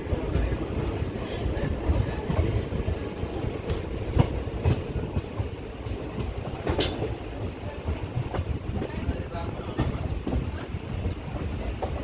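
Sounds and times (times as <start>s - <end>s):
clickety-clack over rail joints: 0.0s - 12.0s
train wheels rumbling on rail: 0.0s - 12.0s.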